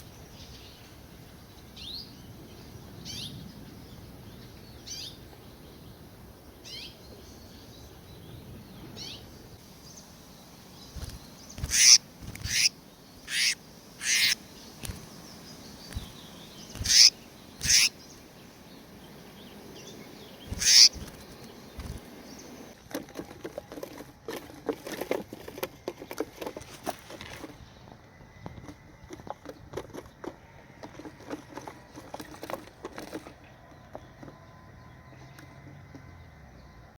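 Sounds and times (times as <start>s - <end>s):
bird wings flapping: 10.9s - 12.7s, 14.8s - 15.2s, 15.9s - 17.1s, 20.5s - 22.1s.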